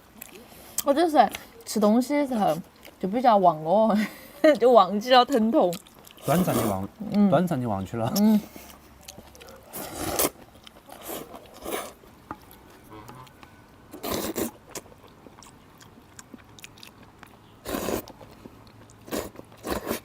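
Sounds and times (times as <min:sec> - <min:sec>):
chewing noodles: 0:05.3 - 0:07.2, 0:08.1 - 0:20.0.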